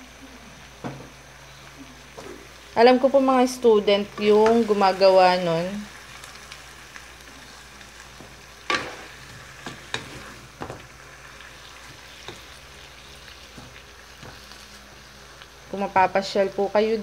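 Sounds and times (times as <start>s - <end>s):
food sizzling in a wok: 0.0s - 17.0s
wooden spatula scraping a pan: 8.7s - 10.8s.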